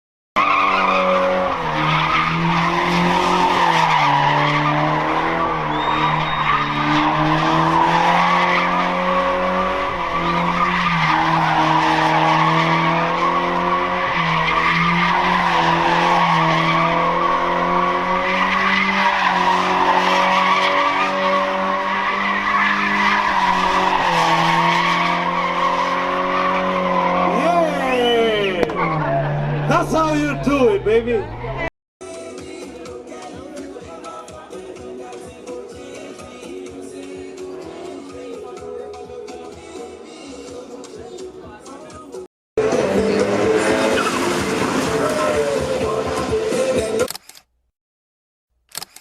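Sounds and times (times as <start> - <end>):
car tyres screeching: 0.4 - 31.7, 42.6 - 46.5.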